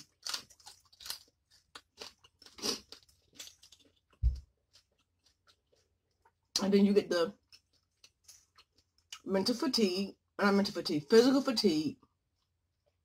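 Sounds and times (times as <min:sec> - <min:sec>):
close chewing with wet crunches: 0:00.0 - 0:06.5
dull low thump: 0:04.2 - 0:04.5.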